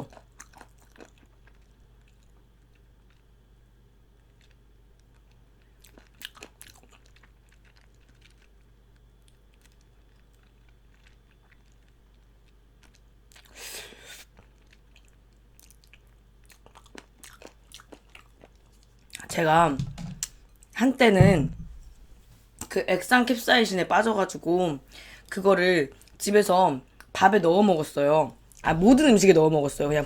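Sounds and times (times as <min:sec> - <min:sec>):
chewing and crunching: 0:00.0 - 0:19.3, 0:25.9 - 0:26.2.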